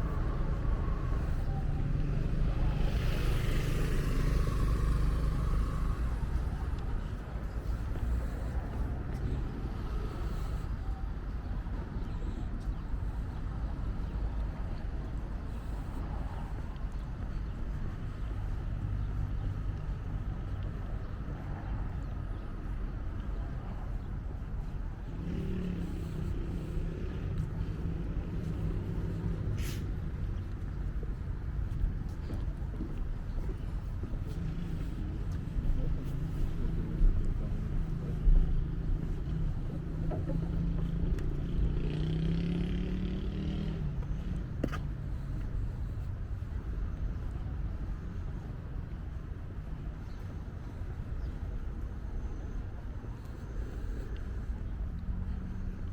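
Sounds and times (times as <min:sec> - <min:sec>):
motor engine running: 0:00.0 - 0:10.4
engine humming: 0:00.0 - 0:55.9.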